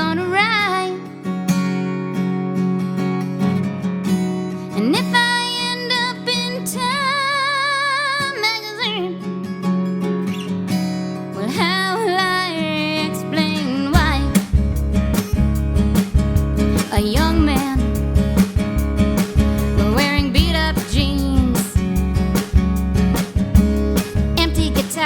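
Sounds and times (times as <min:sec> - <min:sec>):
strummed acoustic guitar: 0:00.0 - 0:25.0
heavy low bass: 0:14.0 - 0:24.8.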